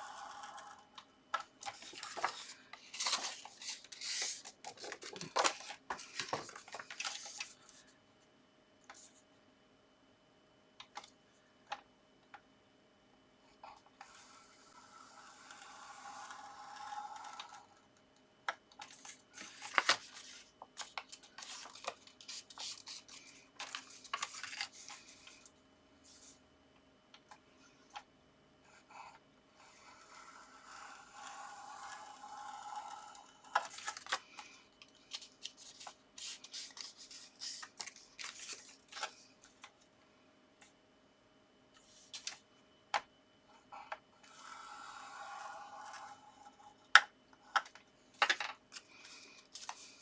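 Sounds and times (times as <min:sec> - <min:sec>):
scoring tool scraping paper: 0:00.0 - 0:00.9, 0:13.7 - 0:17.8, 0:28.7 - 0:34.4, 0:43.7 - 0:46.8
paper rustling and creasing: 0:00.4 - 0:08.0, 0:18.8 - 0:26.4, 0:29.8 - 0:39.8, 0:41.8 - 0:42.4, 0:48.3 - 0:50.0.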